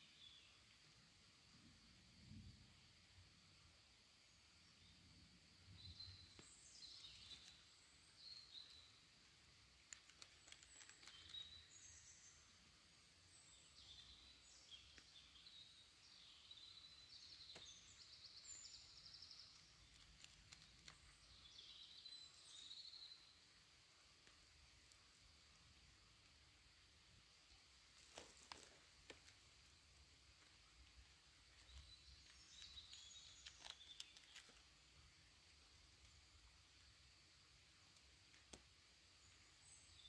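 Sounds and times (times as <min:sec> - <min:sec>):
small birds chirping and trilling: 0:05.6 - 0:23.6, 0:27.8 - 0:40.0.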